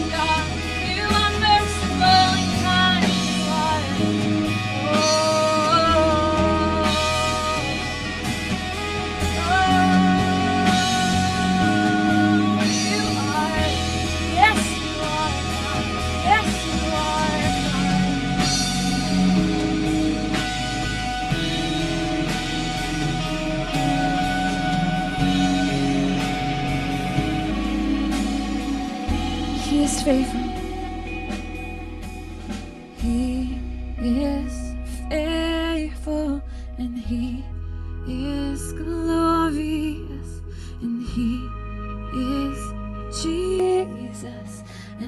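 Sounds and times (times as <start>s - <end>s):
worship band playing: 0.0s - 34.6s.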